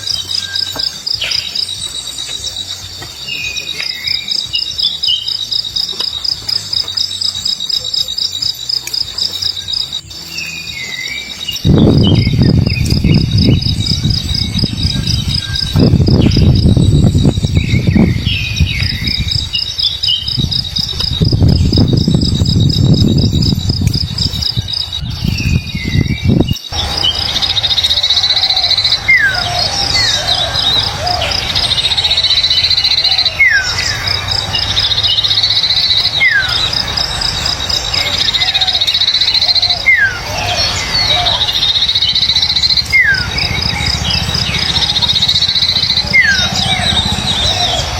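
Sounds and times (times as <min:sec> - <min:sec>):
falling whistled bird calls: 0:00.0 - 0:47.9
insect trill: 0:00.0 - 0:47.9
loud low rumbling noise: 0:11.2 - 0:39.0, 0:39.7 - 0:47.9.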